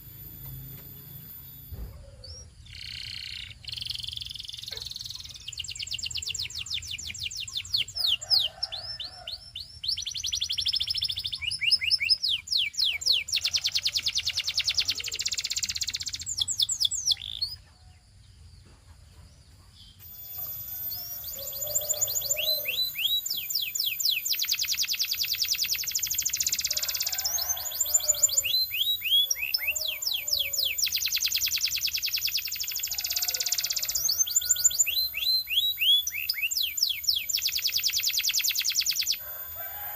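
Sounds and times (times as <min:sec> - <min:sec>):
faint high whine: 0:00.0 - 0:02.5, 0:20.0 - 0:24.0
canary singing trills: 0:00.0 - 0:18.6, 0:19.6 - 0:39.5.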